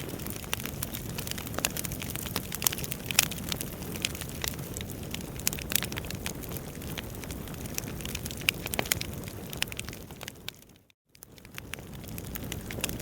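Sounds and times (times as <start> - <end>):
fire flames rumbling: 0.0 - 13.0
logs crackling and popping: 0.0 - 13.0.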